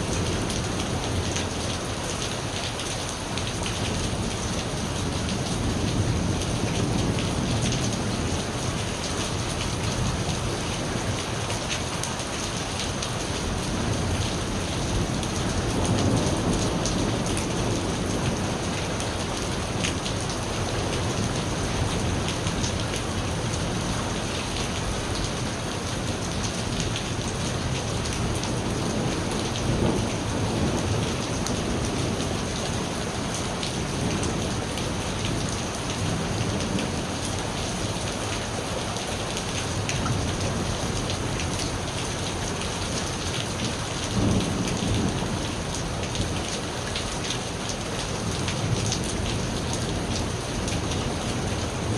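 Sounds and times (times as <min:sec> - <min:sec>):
rain pouring: 0:00.0 - 0:51.9.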